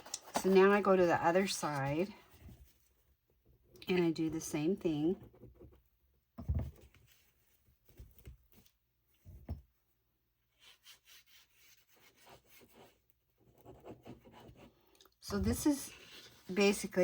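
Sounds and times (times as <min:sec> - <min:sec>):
paper rustling: 0:00.0 - 0:02.8.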